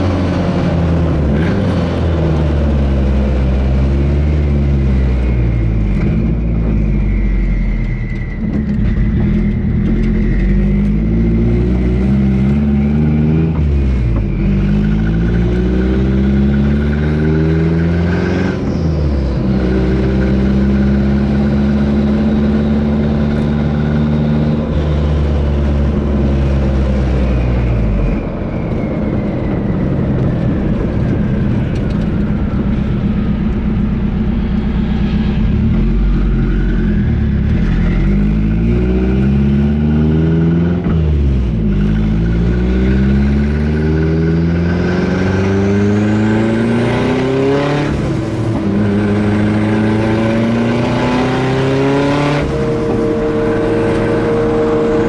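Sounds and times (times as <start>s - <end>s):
car engine accelerating: 0.0s - 55.0s
faint high turbo whistle: 5.1s - 12.7s.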